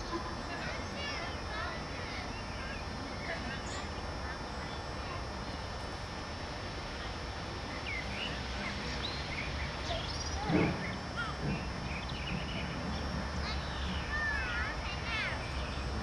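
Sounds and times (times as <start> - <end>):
small birds chirping: 0.0 - 5.7, 7.0 - 16.0.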